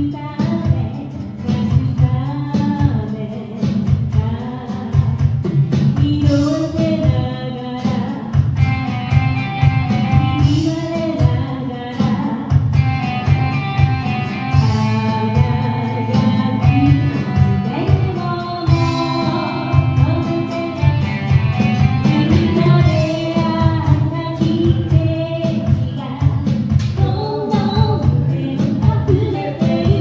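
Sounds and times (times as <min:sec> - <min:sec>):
guitar: 0:00.0 - 0:30.0
steady drum beat: 0:00.0 - 0:30.0
person singing: 0:14.3 - 0:30.0.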